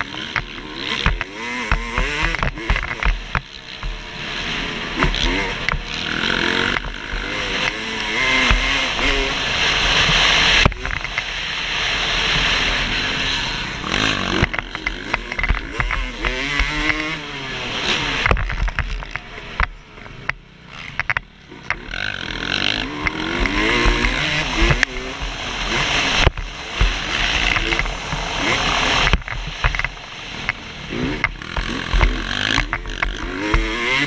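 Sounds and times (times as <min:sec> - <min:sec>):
knocks and rattles: 0:00.0 - 0:04.0, 0:14.0 - 0:17.2, 0:18.0 - 0:34.0
motorcycle engine revving: 0:00.0 - 0:34.0.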